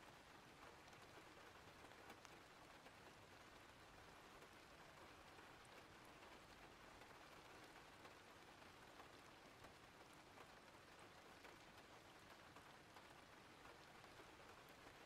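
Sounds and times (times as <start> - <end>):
light rain hiss: 0.0 - 15.0
rain drops ticking: 0.0 - 15.0.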